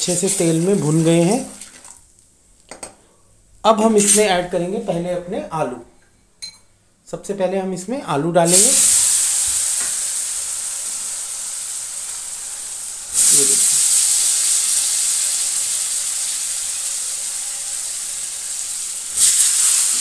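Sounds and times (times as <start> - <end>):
potatoes sizzling in hot oil: 8.5 - 20.0.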